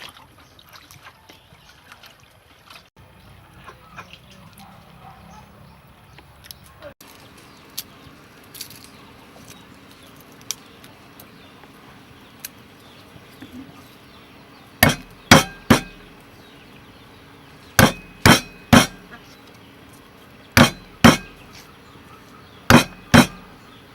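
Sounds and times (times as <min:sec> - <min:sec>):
knife chopping on cutting board: 0:14.8 - 0:16.0, 0:17.8 - 0:19.1, 0:20.6 - 0:21.4, 0:22.7 - 0:23.5.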